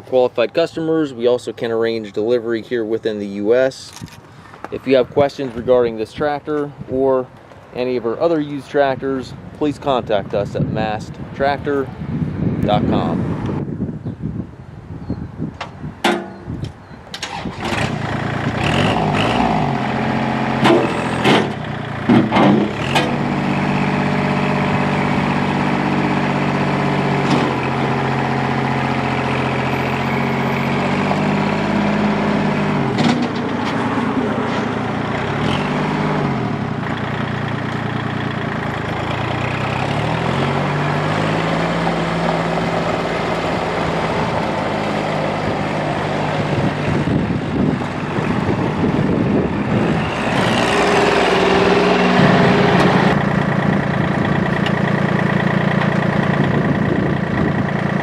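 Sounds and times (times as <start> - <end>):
diesel engine starting and running: 0.0 - 58.0
sharp knocks: 16.0 - 16.4.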